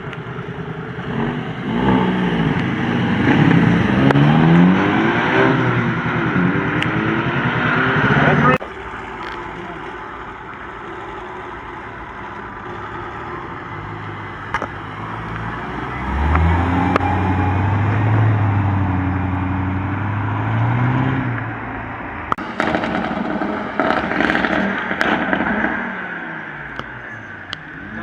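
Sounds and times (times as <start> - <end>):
exhaust pops and crackles: 0.0 - 4.9, 8.2 - 17.1, 22.3 - 28.0
car engine pulling hard: 0.0 - 28.0.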